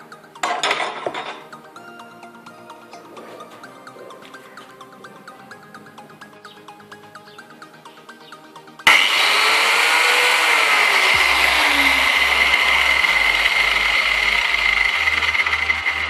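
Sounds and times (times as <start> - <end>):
angle grinder cutting: 8.9 - 16.0.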